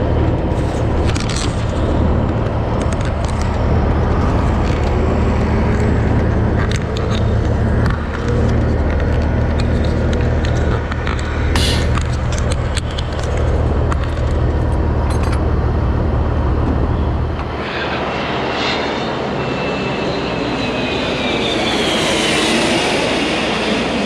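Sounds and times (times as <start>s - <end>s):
engine drone with clicks: 0.0s - 20.0s
high whine falling in pitch: 15.6s - 24.0s.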